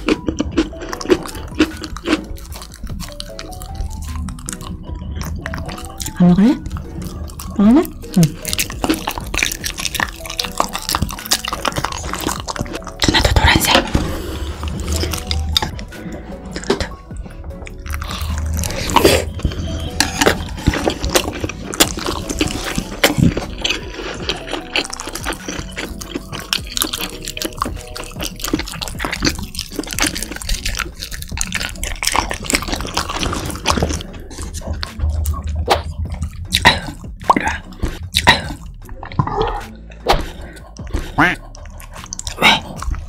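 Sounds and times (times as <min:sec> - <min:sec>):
wet chewing and smacking: 0:00.0 - 0:43.0.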